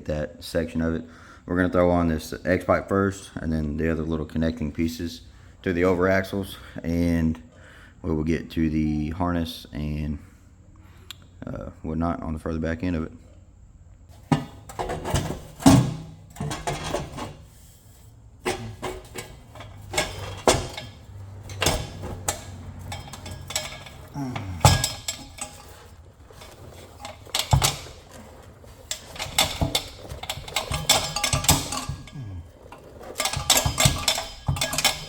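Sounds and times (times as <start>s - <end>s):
metal exhaust parts clanking: 14.1s - 35.0s.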